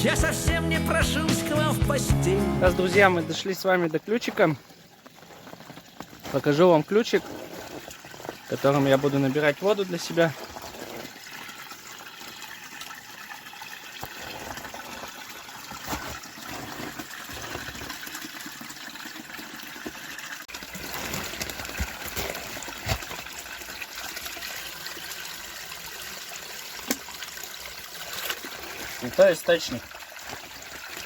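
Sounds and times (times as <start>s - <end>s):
spring water trickling: 3.4s - 31.0s.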